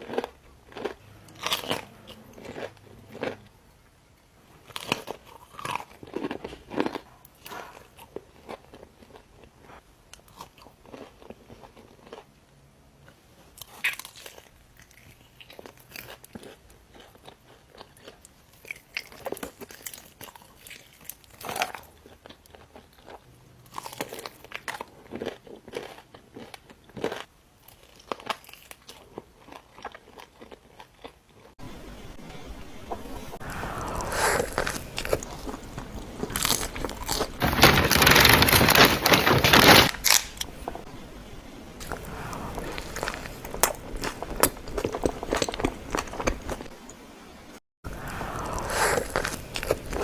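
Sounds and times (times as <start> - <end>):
crisp bites and crunchy chewing: 0.0 - 3.5, 4.6 - 12.3, 13.5 - 31.5, 33.8 - 40.5, 48.0 - 50.0.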